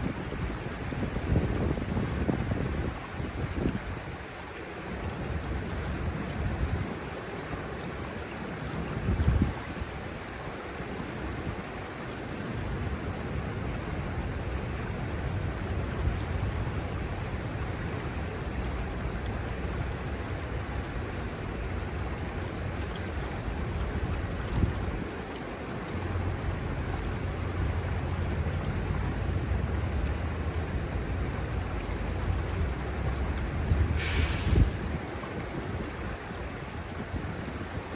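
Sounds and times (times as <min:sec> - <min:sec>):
wind buffeting microphone: 0:00.0 - 0:04.4, 0:08.9 - 0:10.3, 0:21.6 - 0:37.9
river flowing over gravel: 0:00.0 - 0:37.9.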